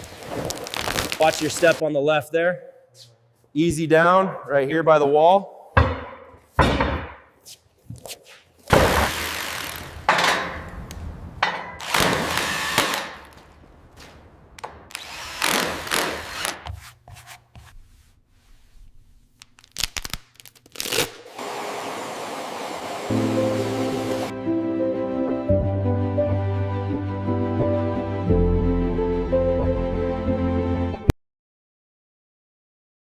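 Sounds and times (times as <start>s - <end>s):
sharp knocks: 5.8s - 7.3s, 11.4s - 12.1s.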